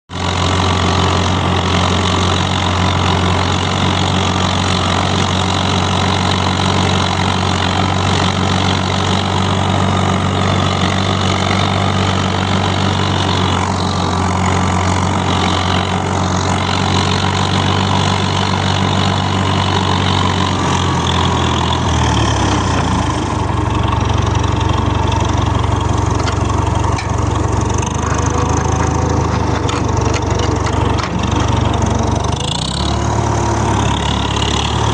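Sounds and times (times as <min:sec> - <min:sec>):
tractor engine idling: 0:00.1 - 0:34.9.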